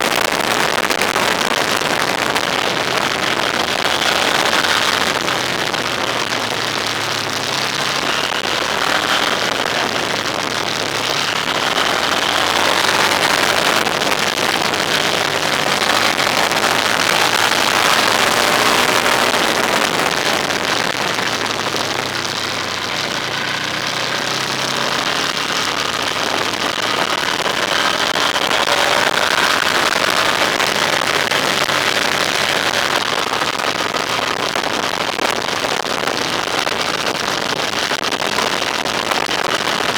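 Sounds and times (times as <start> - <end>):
wind and road noise: 0.0 - 39.9
vehicle engine running: 0.5 - 33.0.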